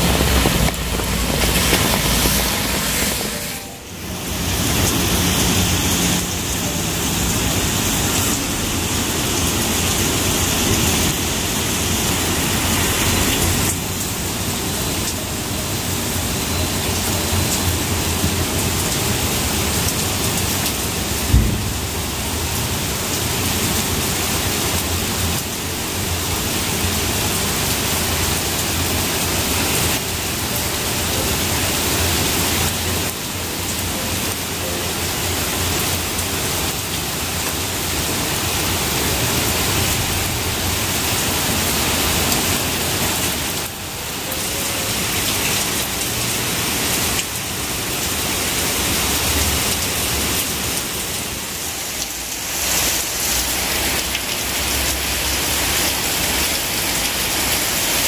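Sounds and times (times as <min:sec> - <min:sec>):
steady rain falling: 0:00.0 - 0:58.0
short thump: 0:21.3 - 0:21.9.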